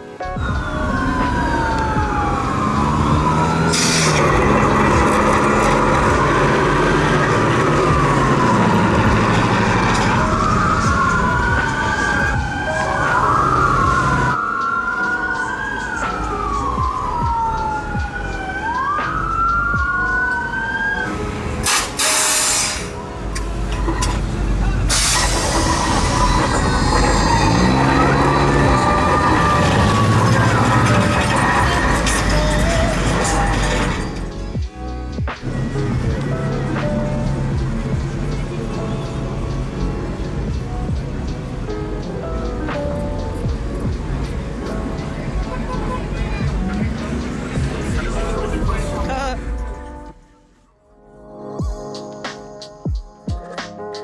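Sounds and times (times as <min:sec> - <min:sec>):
engines rumbling: 0:00.0 - 0:50.5
siren wailing: 0:00.1 - 0:34.6
loud bursts of noise: 0:00.5 - 0:14.4, 0:21.0 - 0:34.5.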